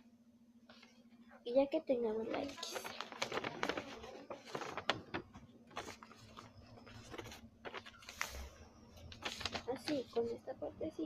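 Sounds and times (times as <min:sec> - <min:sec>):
paper rustling and crinkling: 0:02.2 - 0:10.4.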